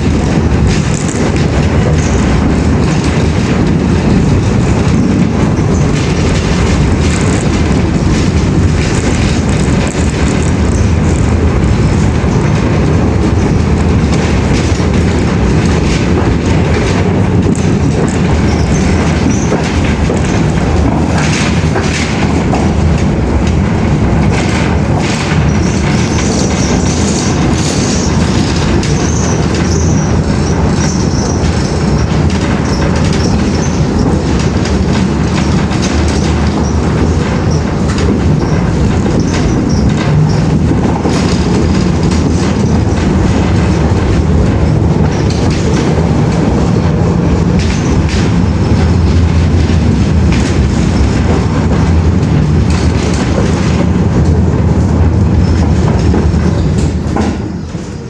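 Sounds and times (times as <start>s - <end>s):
moving train rumble: 0.0s - 58.0s.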